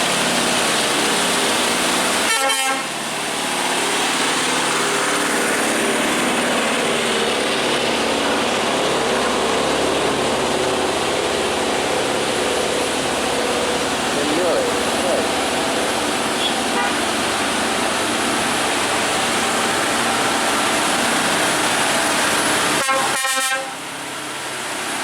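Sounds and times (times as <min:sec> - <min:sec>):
heavy truck passing: 0:00.0 - 0:25.0
vehicle horn: 0:02.2 - 0:02.9, 0:16.4 - 0:17.2, 0:22.8 - 0:23.8.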